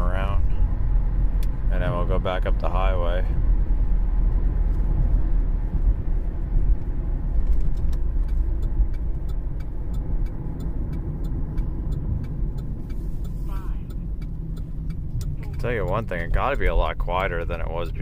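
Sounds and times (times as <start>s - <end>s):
car road rumble: 0.0s - 18.0s
light even ticking: 6.7s - 18.0s.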